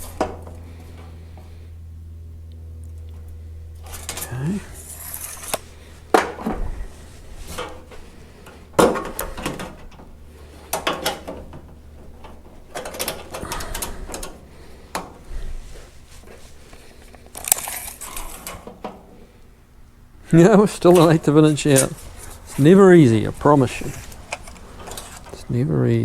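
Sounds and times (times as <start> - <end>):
short metal rattles: 2.9 - 19.4.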